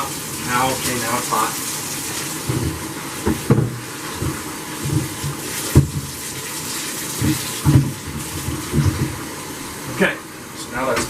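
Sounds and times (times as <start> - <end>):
water rushing into a tank: 0.0 - 11.0
short knocks: 2.5 - 6.2.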